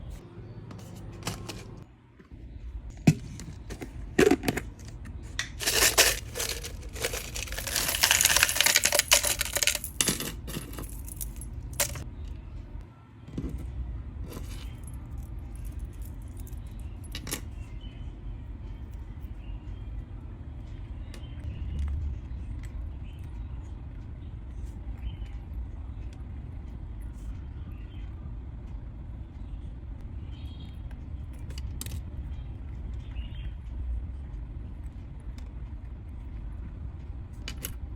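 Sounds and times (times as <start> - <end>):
small hard objects clicking: 5.4 - 12.0
rustling: 5.6 - 12.0.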